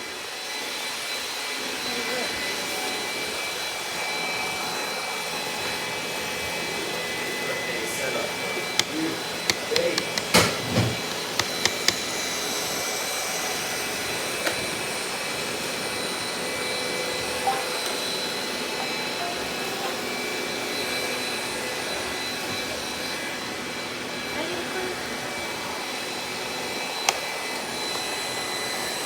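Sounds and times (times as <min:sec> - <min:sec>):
robot vacuum cleaner whirring: 0:07.0 - 0:23.8
sharp clicks: 0:08.8 - 0:12.1.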